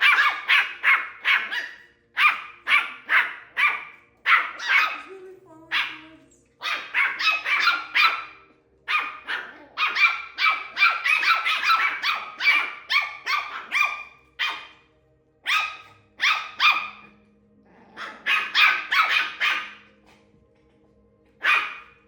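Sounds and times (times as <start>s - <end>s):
puppy barking high-pitched: 0.0s - 5.1s, 5.7s - 17.1s, 18.0s - 19.9s, 21.4s - 22.0s.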